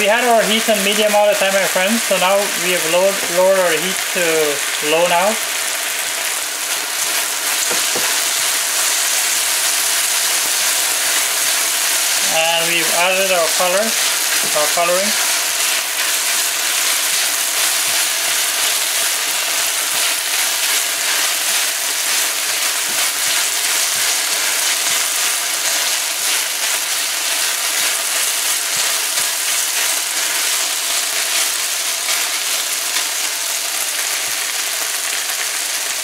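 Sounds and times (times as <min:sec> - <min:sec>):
rice sizzling in a pan: 0:00.0 - 0:36.0
spatula stirring: 0:10.5 - 0:33.1.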